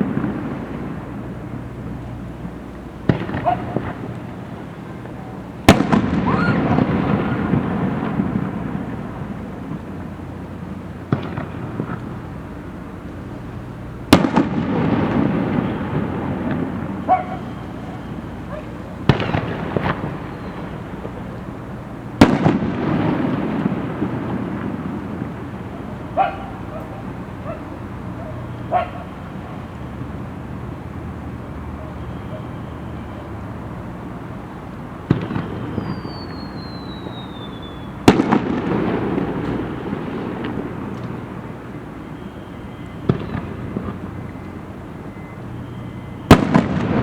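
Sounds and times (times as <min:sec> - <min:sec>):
faint fireworks bangs: 0:00.0 - 0:47.0
fireworks booming: 0:00.0 - 0:47.0
fireworks rumbling and crackling: 0:00.0 - 0:47.0.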